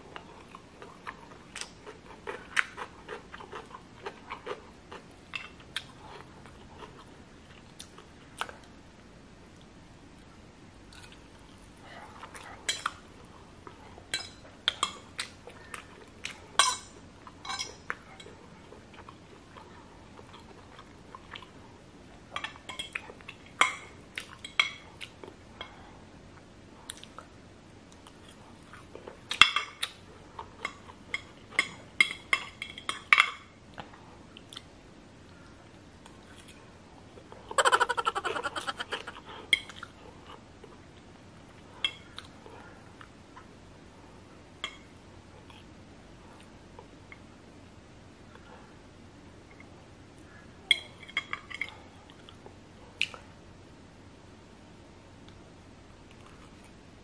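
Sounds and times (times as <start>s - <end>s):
chewing noodles: 0.1s - 8.5s.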